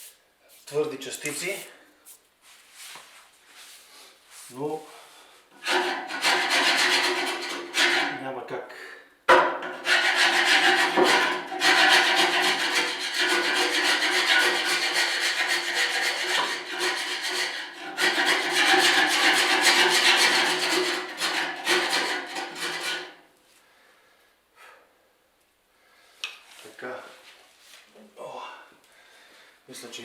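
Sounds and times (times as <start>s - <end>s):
chisel scraping metal: 5.6s - 8.2s, 9.7s - 23.2s.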